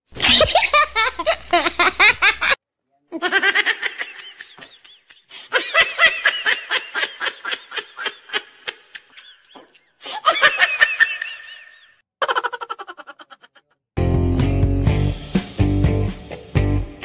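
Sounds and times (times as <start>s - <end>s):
high-pitched giggling laughter: 0.2s - 13.8s.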